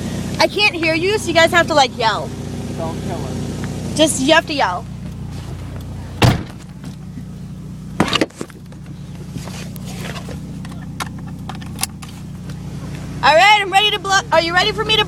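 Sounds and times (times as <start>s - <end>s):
truck engine humming: 0.0s - 15.0s
loud thump: 6.2s - 7.0s, 8.0s - 8.5s.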